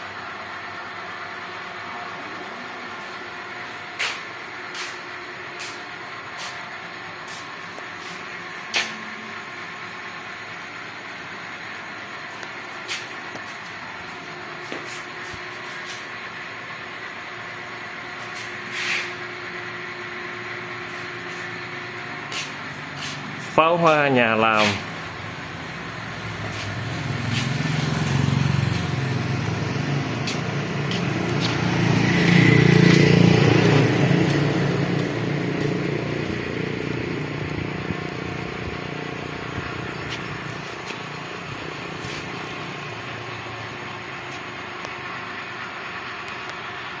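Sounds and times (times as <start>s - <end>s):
road traffic passing: 0.0s - 47.0s
vehicle engine passing: 17.6s - 46.9s.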